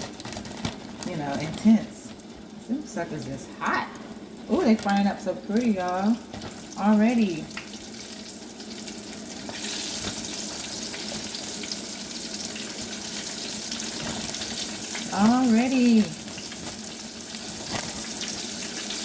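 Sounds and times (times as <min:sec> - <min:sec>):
food sizzling in hot oil: 0:01.9 - 0:19.0.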